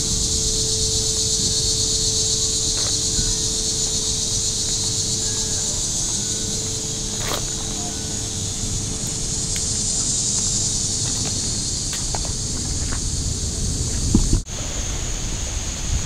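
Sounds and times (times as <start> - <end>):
insects droning: 0.0 - 16.0
low steady hum: 0.0 - 16.0.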